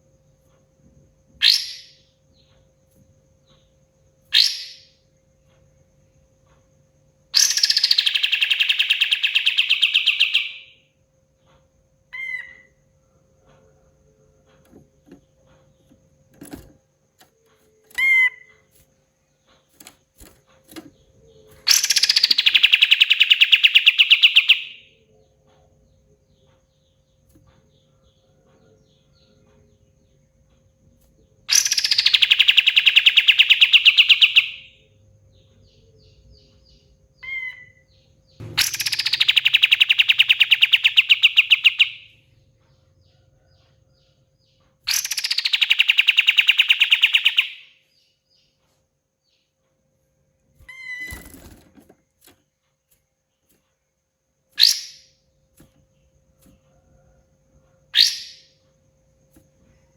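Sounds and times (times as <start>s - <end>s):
bird rattling trills: 19.6s - 24.7s, 38.4s - 42.1s, 44.9s - 47.6s, 50.6s - 52.3s
bird short chirps: 37.2s - 42.1s, 54.6s - 55.2s, 58.0s - 58.5s.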